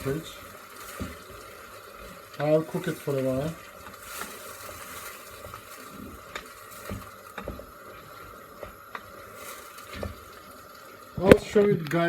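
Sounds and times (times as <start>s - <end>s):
pot simmering hiss: 0.0s - 12.0s
faint pops and clicks: 11.2s - 12.0s.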